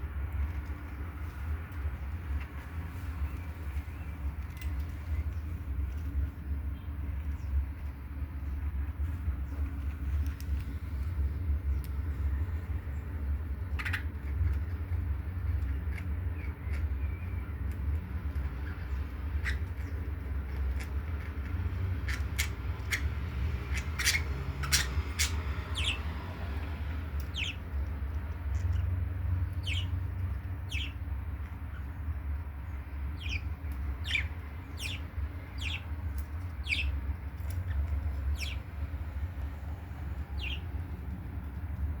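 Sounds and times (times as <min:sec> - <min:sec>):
steady low rumble: 0:00.0 - 0:42.0
budgerigars chirping: 0:13.7 - 0:14.1, 0:18.5 - 0:20.1, 0:22.0 - 0:26.2, 0:27.2 - 0:27.8, 0:28.4 - 0:38.9, 0:40.2 - 0:40.9.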